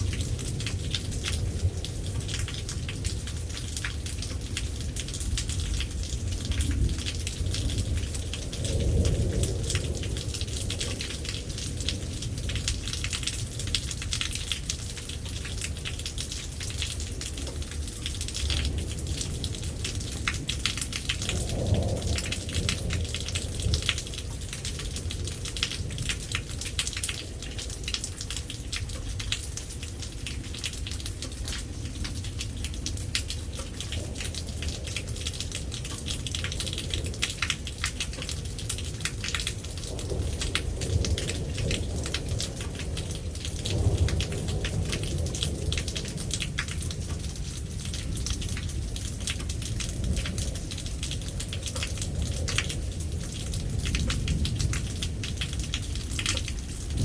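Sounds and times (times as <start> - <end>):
heavy rain pattering: 0.0 - 57.0
distant thunder rumble: 4.8 - 13.6, 18.5 - 26.4, 31.4 - 57.0.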